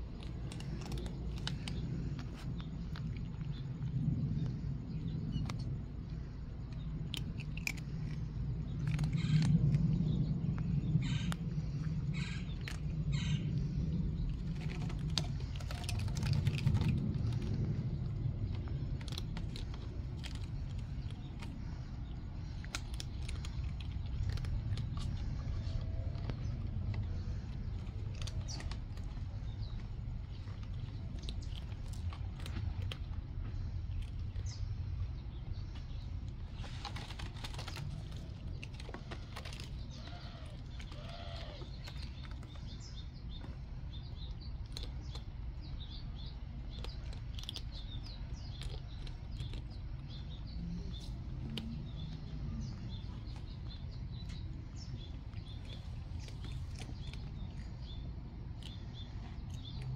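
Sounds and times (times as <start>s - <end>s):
small birds chirping: 0.0s - 59.9s
steady low rumble: 0.0s - 59.9s
kittens scratching on rope: 14.3s - 34.6s, 35.8s - 43.7s.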